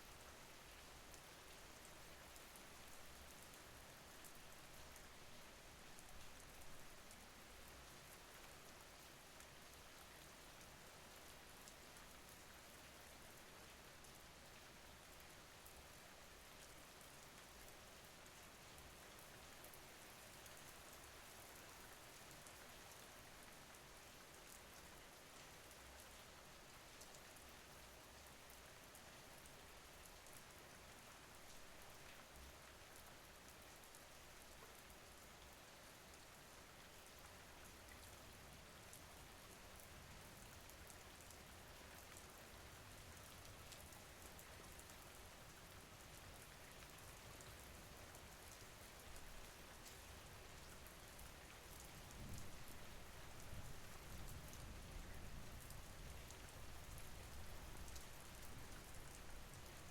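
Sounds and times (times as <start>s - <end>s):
faint steady rain: 0.0s - 59.9s.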